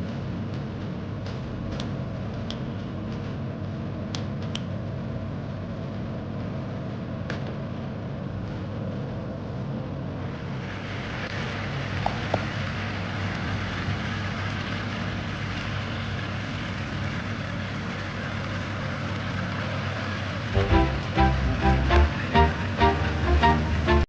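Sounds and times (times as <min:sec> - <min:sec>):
steady low hum: 0:20.3 - 0:24.0.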